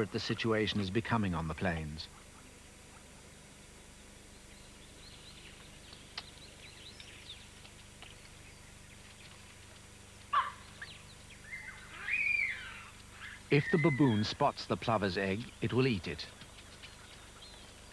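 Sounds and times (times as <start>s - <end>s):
faint bird chirps: 10.4s - 14.4s.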